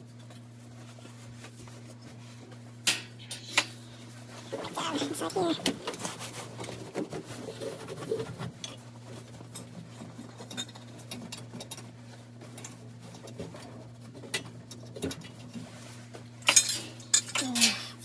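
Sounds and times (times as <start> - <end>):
metal clatter: 16.4 - 17.8
metal parts and tools handled: 16.4 - 17.9.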